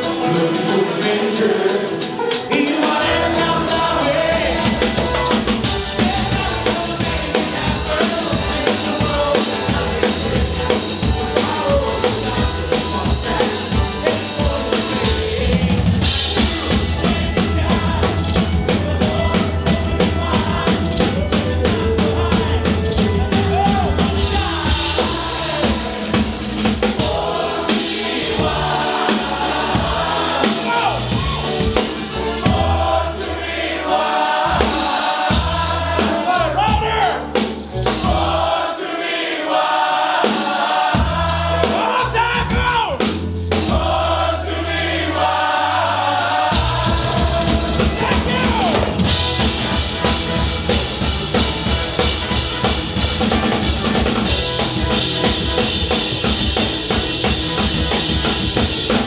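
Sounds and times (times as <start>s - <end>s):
person singing: 0.0s - 31.8s, 45.2s - 54.3s
fast steady drumming: 0.0s - 38.5s, 39.5s - 59.0s
live bluegrass band playing: 0.0s - 38.5s, 41.0s - 59.0s.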